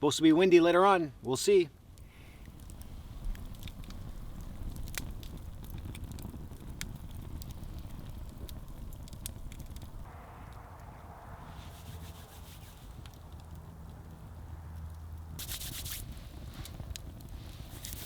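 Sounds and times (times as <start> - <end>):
campfire crackling and popping: 1.8 - 18.0
low rumble: 2.6 - 15.4.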